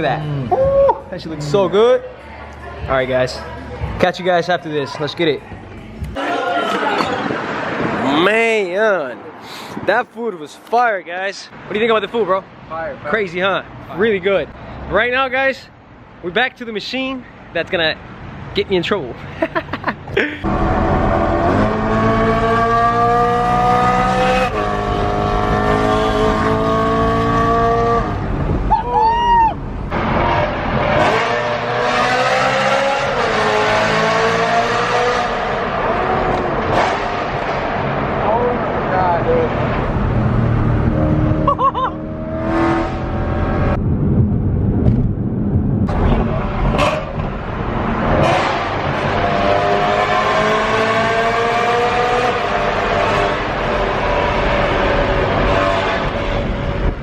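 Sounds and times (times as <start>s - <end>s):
loud car engine revving: 20.4s - 28.7s, 29.9s - 57.0s.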